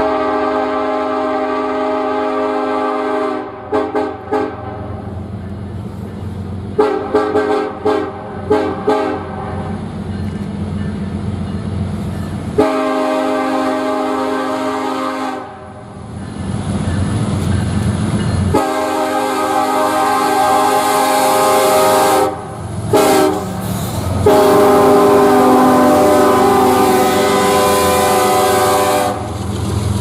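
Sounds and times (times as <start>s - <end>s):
locomotive air horn blasts: 0.0s - 4.9s, 6.8s - 9.6s, 12.6s - 15.8s, 18.5s - 29.3s
low rumble of train: 0.0s - 30.0s.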